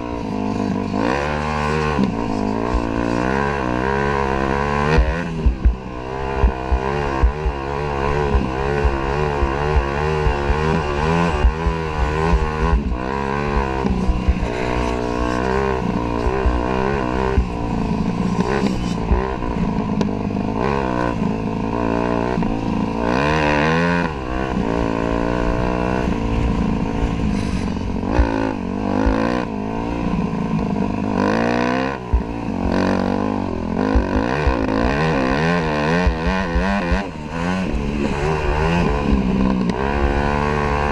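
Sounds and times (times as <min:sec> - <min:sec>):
dirt bike engine revving: 0:00.0 - 0:40.9
low thumps: 0:05.0 - 0:20.2.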